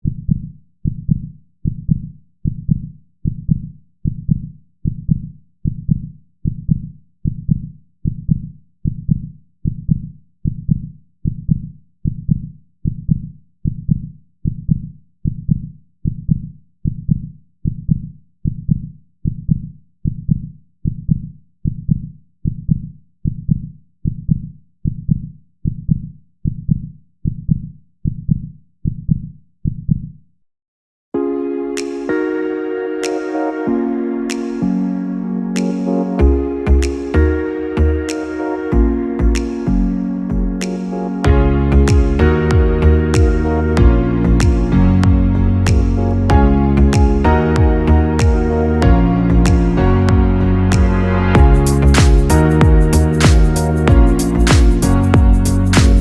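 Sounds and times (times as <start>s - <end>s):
low thumping pulse: 41.3s - 56.0s.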